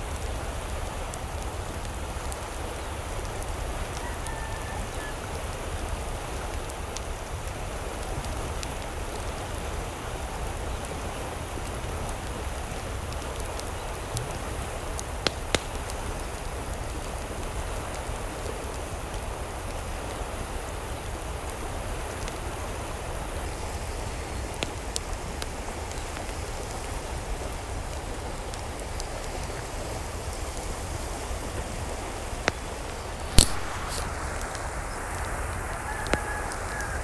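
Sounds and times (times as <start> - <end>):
water hissing: 32.0 - 36.6.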